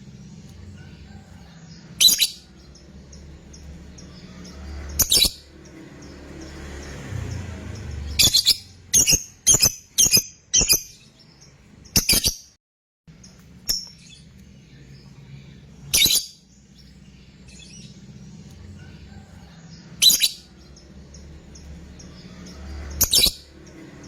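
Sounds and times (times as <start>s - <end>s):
lovebird shrill calls: 2.0s - 2.5s, 8.1s - 11.1s, 15.9s - 16.4s, 20.0s - 20.5s.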